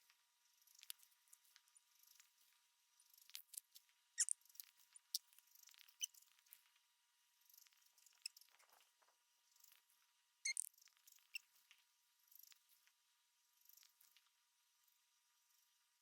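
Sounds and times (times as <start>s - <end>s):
faint small clicks: 0.0s - 6.9s, 13.7s - 14.4s.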